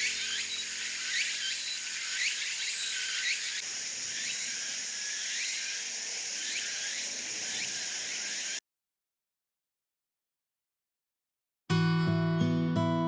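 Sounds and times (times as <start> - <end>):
insect high buzz: 0.0 - 8.6
short rising insect chirps: 0.0 - 8.6.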